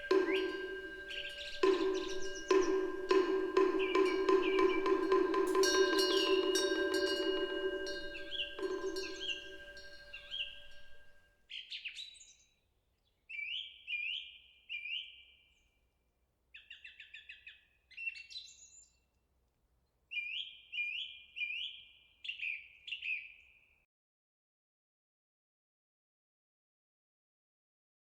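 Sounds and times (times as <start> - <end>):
songbird singing sharp falling notes: 0.0 - 6.4
temple wind bell ringing: 0.0 - 11.2.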